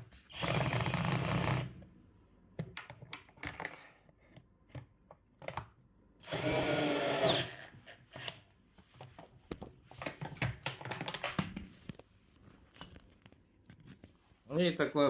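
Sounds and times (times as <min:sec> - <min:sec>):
cordless drill running: 0:00.3 - 0:01.8, 0:06.2 - 0:07.7
tools clicking and knocking: 0:09.0 - 0:11.7.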